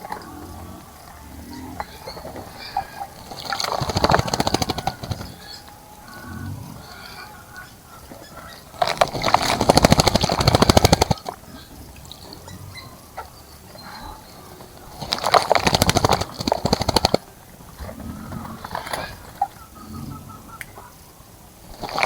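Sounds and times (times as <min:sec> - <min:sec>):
bird splashing wings in water: 0:01.8 - 0:05.9, 0:08.0 - 0:12.3, 0:14.7 - 0:17.4, 0:21.7 - 0:22.0.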